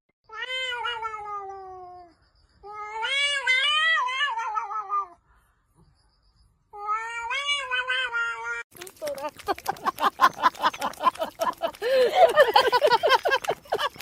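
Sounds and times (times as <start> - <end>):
cat yowling: 0.3 - 2.1, 2.7 - 5.2.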